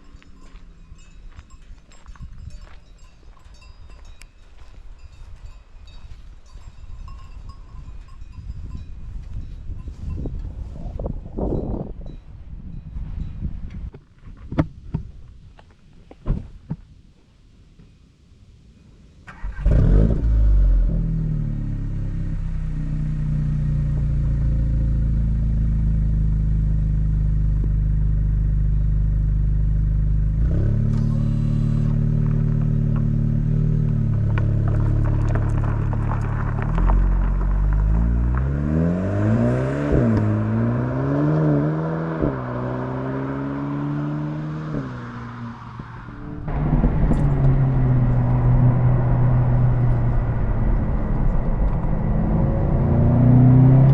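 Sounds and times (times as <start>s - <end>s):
car engine starting and idling: 19.2s - 53.9s
car engine revving: 19.3s - 53.9s.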